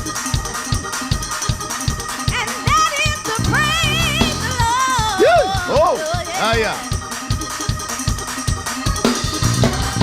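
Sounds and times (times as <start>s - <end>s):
gospel praise music: 1.0s - 8.4s
drum beat: 1.8s - 10.0s.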